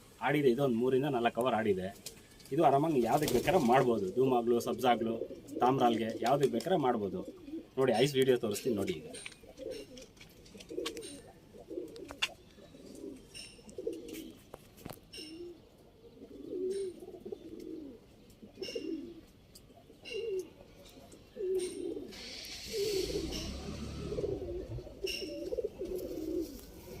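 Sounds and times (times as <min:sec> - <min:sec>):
pigeons cooing: 0:00.0 - 0:27.0
short rustle: 0:25.8 - 0:27.0.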